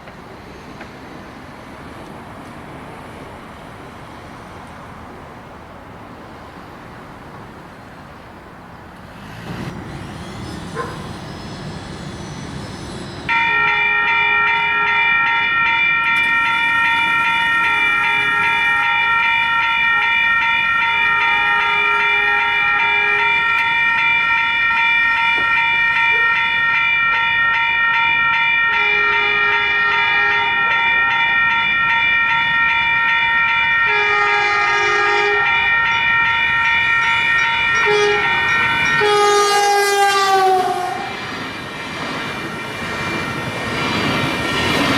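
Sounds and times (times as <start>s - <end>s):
locomotive air horn blast: 9.5s - 11.4s, 13.3s - 15.2s, 17.6s - 19.2s, 21.1s - 24.1s, 28.7s - 30.9s, 33.9s - 36.0s, 36.9s - 41.3s.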